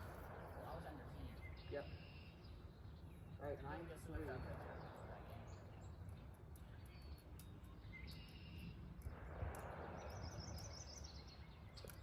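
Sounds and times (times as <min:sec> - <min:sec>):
faint bird chirps: 0:01.2 - 0:04.9, 0:05.5 - 0:08.8.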